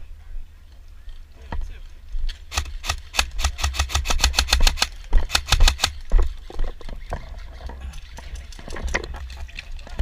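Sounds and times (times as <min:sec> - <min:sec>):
airsoft rifle firing: 0:02.5 - 0:06.0.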